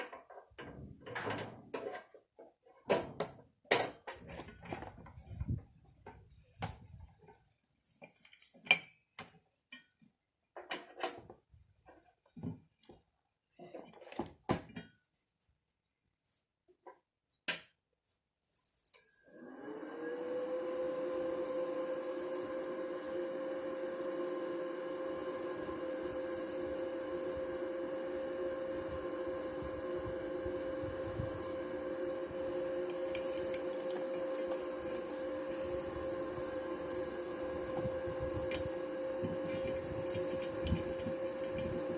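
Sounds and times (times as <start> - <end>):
welding machine fan hum: 21.3 - 41.9.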